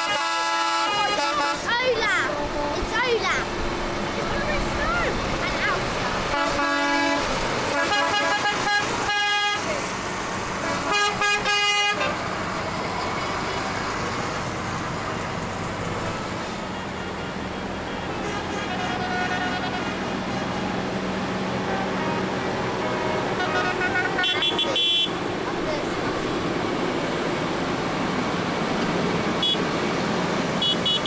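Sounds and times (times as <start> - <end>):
vehicle horns tooting: 0.0 - 2.9, 4.4 - 10.0, 10.6 - 12.3, 18.1 - 25.9, 29.4 - 29.7, 30.6 - 31.0
engines running: 0.0 - 31.0.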